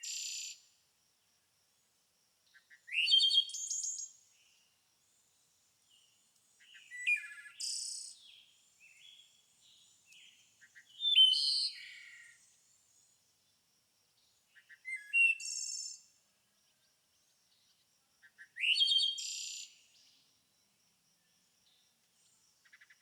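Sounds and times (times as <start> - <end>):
songbird singing with high trill: 2.6 - 4.3, 6.6 - 12.4, 14.6 - 16.1, 18.4 - 19.8.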